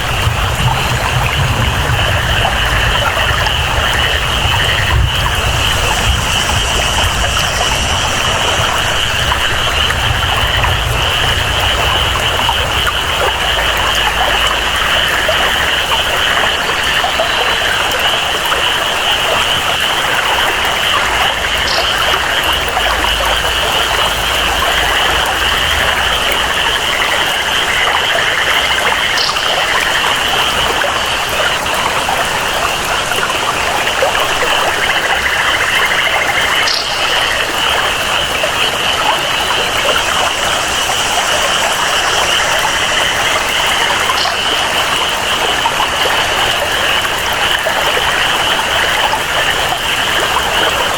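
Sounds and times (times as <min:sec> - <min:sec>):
low rumble: 0:00.0 - 0:15.6
flowing water: 0:00.0 - 0:50.9
steady rain: 0:00.0 - 0:50.9
high-pitched jungle chorus: 0:34.7 - 0:50.9.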